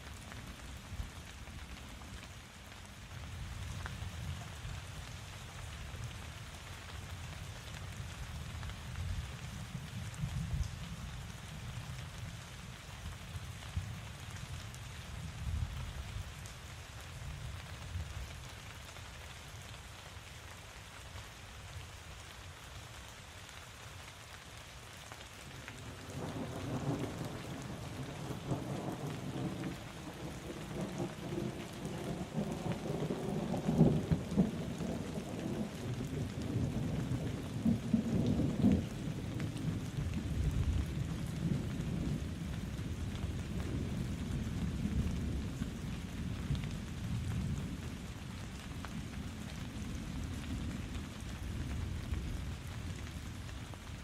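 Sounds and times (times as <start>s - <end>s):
steady rain: 0.0s - 54.0s
low rumble of thunder: 25.8s - 54.0s.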